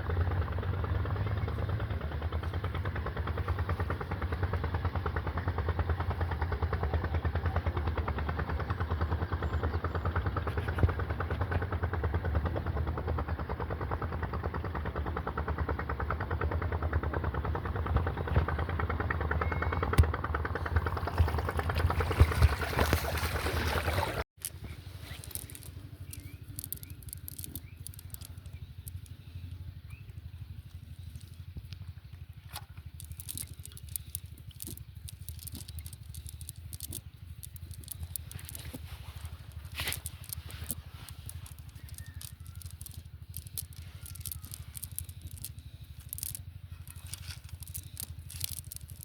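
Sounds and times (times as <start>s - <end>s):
small engine running: 0.0s - 49.0s
scattered clicks: 24.4s - 49.0s.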